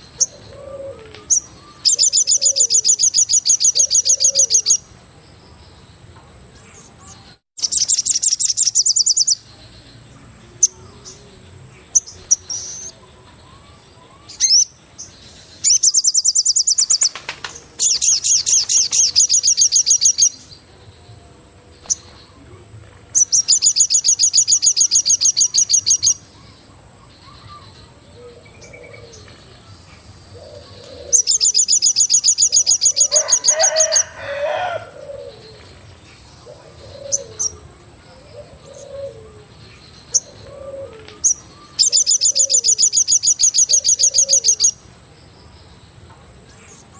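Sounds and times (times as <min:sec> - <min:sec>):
bird trilling: 0:00.0 - 0:04.8, 0:07.6 - 0:09.4, 0:13.5 - 0:14.8, 0:17.8 - 0:20.4, 0:23.2 - 0:26.6, 0:30.4 - 0:35.6, 0:36.4 - 0:37.6, 0:40.1 - 0:44.8
bird cooing: 0:00.2 - 0:04.7, 0:27.2 - 0:29.6, 0:30.3 - 0:31.6, 0:32.5 - 0:35.8, 0:36.4 - 0:42.9, 0:43.6 - 0:44.7.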